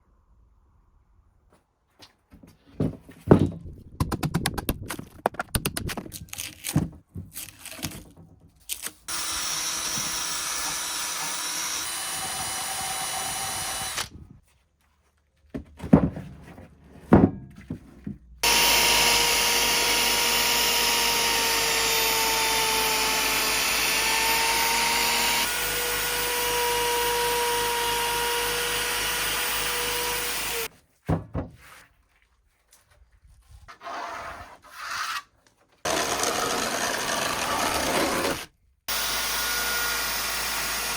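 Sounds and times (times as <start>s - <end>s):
electric power tool running: 9.1s - 14.1s, 18.4s - 30.7s, 35.9s - 40.9s
power tool whining: 9.1s - 14.1s, 18.4s - 30.7s, 35.9s - 40.9s.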